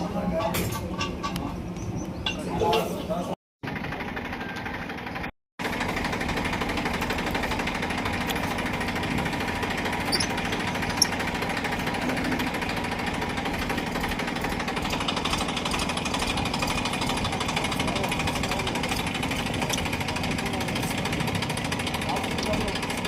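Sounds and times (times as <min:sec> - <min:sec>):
power tool rattling: 0:05.6 - 0:23.0.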